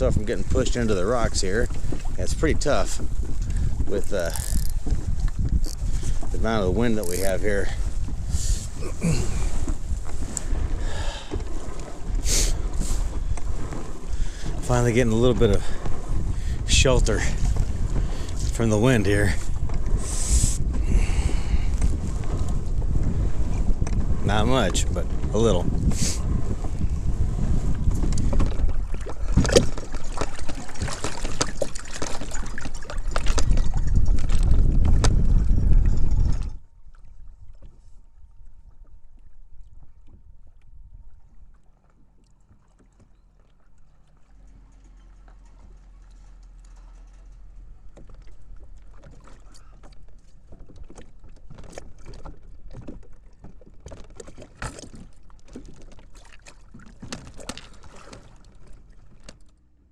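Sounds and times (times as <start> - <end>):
wind buffeting microphone: 0.0 - 41.6.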